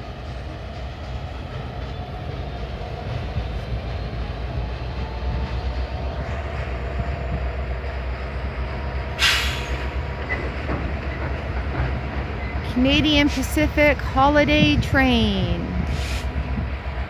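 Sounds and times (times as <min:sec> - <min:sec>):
train wheels rumbling on rail: 0:00.0 - 0:17.0
high-pitched train squeal: 0:08.9 - 0:11.3.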